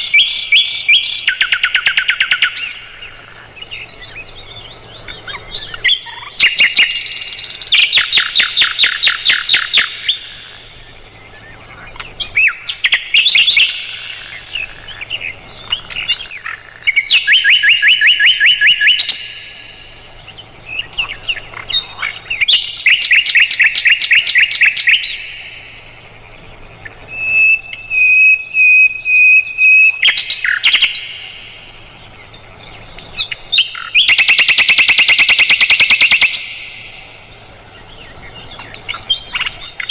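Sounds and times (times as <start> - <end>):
bird trilling: 0.0 - 39.9
bird whistled phrase with high pips: 16.0 - 19.8, 27.1 - 31.3, 33.2 - 36.9.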